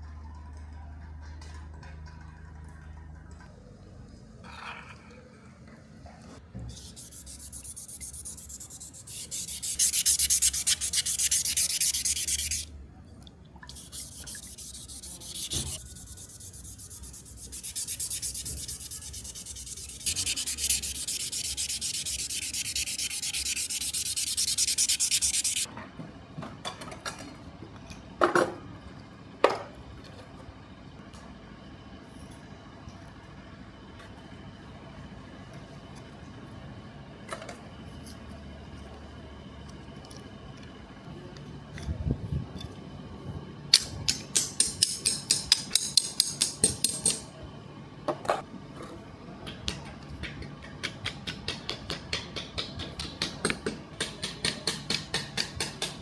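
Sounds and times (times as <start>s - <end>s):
sandpaper rubbing: 6.7s - 12.7s, 13.7s - 25.7s.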